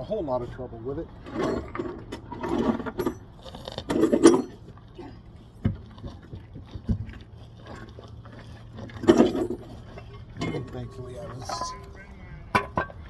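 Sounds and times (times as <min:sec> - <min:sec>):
metal tools clanking: 0:01.2 - 0:03.3, 0:03.9 - 0:04.7, 0:08.9 - 0:13.0
steady low hum: 0:09.7 - 0:13.0.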